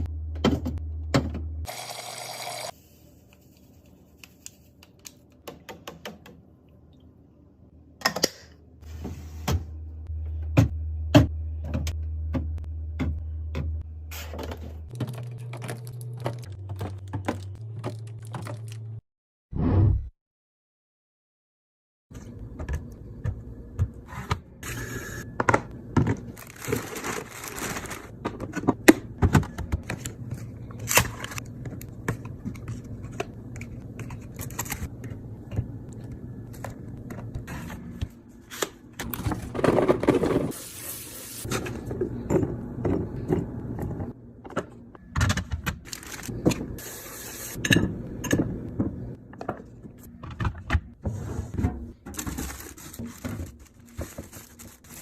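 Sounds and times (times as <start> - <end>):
packaging rustling: 26.3 - 28.2, 45.8 - 46.4, 52.1 - 55.0.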